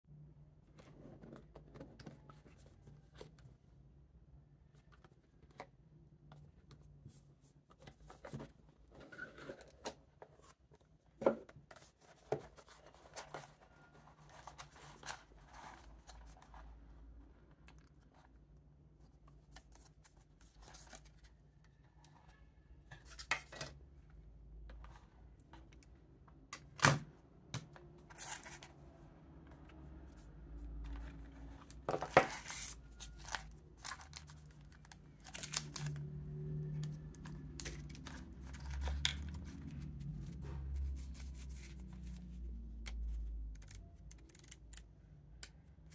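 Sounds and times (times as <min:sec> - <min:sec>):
packaging being handled: 0:30.7 - 0:36.1, 0:36.8 - 0:42.2.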